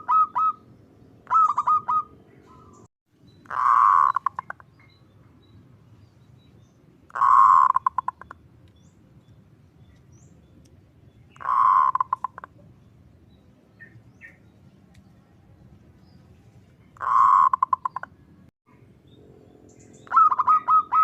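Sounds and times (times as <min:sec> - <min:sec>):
dove cooing: 0:00.0 - 0:00.6, 0:01.2 - 0:02.7, 0:03.5 - 0:04.5, 0:07.2 - 0:08.2, 0:11.4 - 0:12.5, 0:17.0 - 0:18.1, 0:20.0 - 0:21.0.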